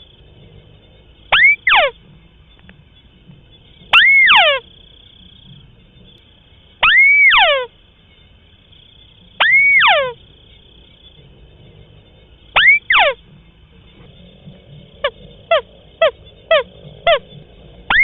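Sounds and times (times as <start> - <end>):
bird calling: 0.0 - 18.0.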